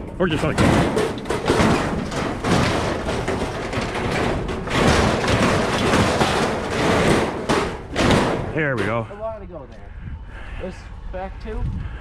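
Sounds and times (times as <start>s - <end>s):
metal grill clattering and scraping: 0.0s - 9.4s.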